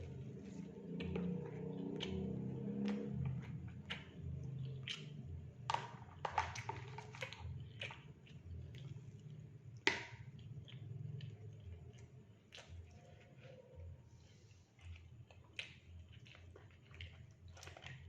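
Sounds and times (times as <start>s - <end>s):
chewing food: 0.0s - 18.0s
wet mouth clicks and smacks: 3.8s - 5.3s.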